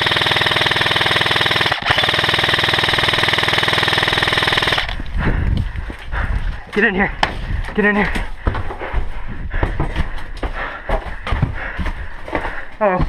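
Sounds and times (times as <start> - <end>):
airsoft rifle firing full-auto: 0.0 - 5.0.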